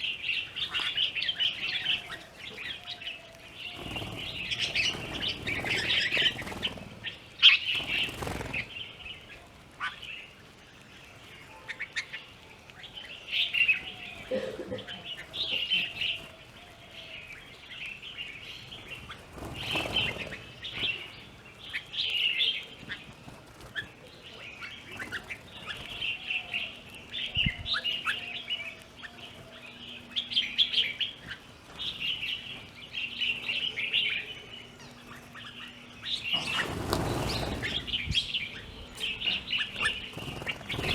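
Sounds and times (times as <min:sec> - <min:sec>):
birds chirping and calling: 0:00.0 - 0:40.9.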